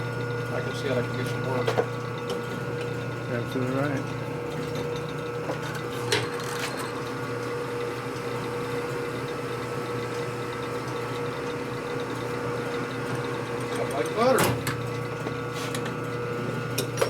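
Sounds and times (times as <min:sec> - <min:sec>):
machine tool motor humming: 0:00.2 - 0:17.0
drill bit cutting metal: 0:06.0 - 0:14.6.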